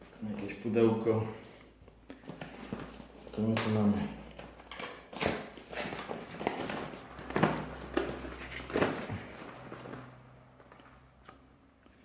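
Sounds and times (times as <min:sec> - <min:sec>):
cardboard box packaging rustling: 0:02.3 - 0:10.8.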